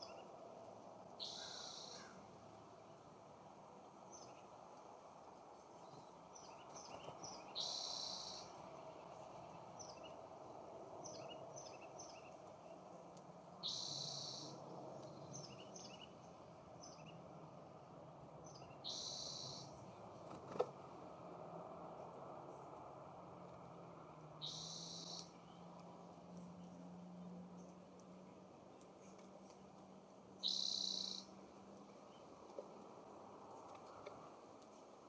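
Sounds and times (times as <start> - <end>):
songbird chirping ending in buzz: 6.8 - 8.5, 13.6 - 14.6, 18.6 - 19.7, 24.4 - 25.6, 30.4 - 31.3.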